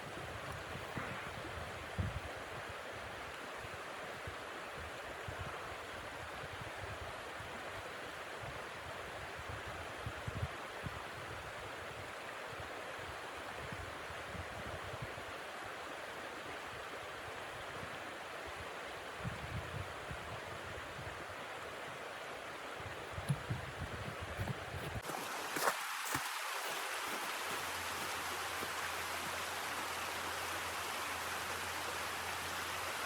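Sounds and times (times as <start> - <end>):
wind thumps on microphone: 0.0 - 2.3, 23.2 - 25.1.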